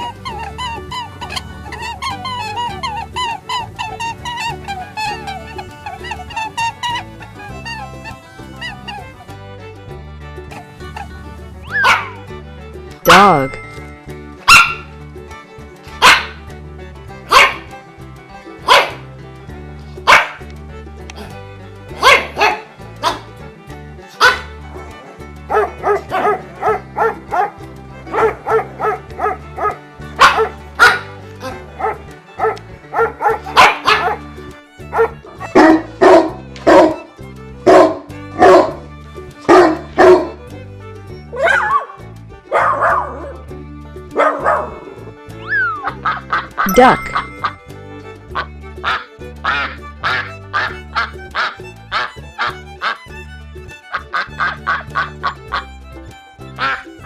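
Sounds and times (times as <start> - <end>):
background music: 0.0 - 57.0
dog barking: 14.5 - 14.8, 16.0 - 16.4, 17.3 - 17.6, 18.7 - 18.9, 20.1 - 20.4, 35.6 - 37.0, 37.7 - 38.7.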